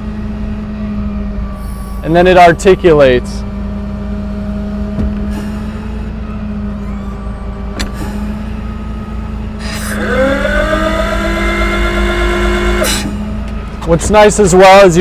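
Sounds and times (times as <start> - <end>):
diesel engine and hydraulic hum: 0.0 - 15.0
rising whine: 9.0 - 13.7.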